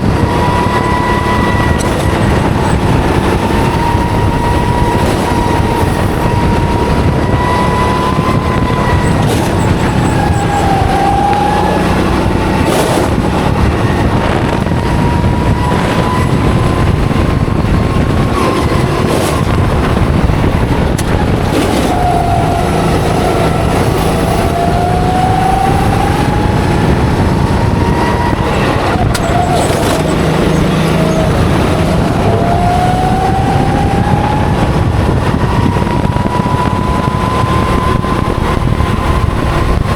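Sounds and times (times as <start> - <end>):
go-kart engine at racing pace: 0.0 - 39.9.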